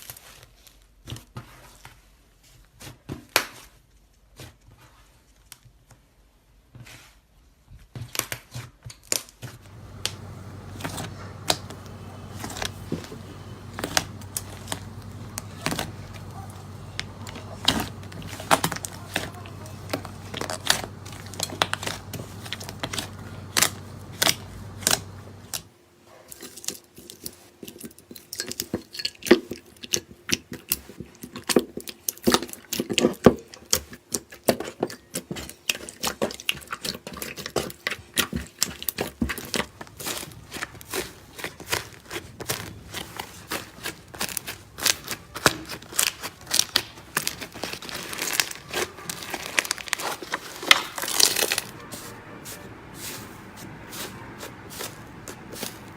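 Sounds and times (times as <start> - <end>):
slime crackling and popping: 9.6 - 25.7, 38.1 - 51.8.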